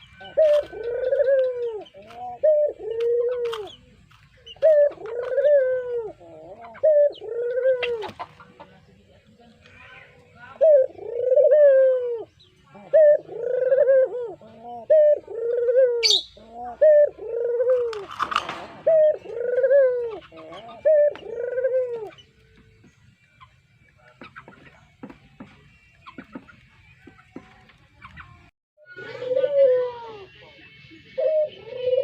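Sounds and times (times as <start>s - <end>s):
dove cooing: 0.0s - 8.7s, 10.5s - 22.4s, 28.9s - 30.4s, 31.1s - 32.0s.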